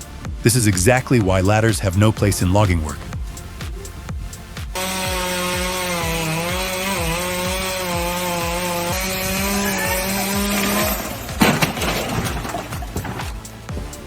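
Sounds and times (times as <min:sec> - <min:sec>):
chainsaw cutting wood: 0:04.6 - 0:14.0.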